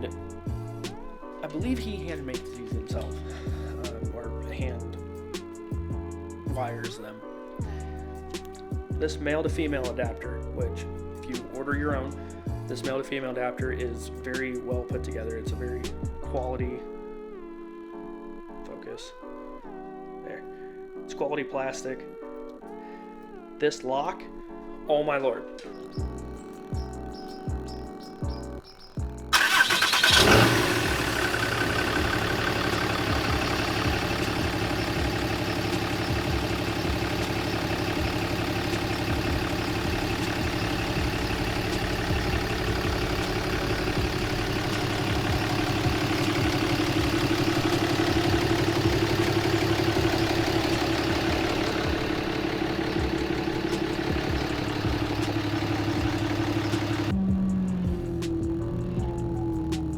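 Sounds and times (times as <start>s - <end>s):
diesel engine starting and idling: 29.2s - 59.9s.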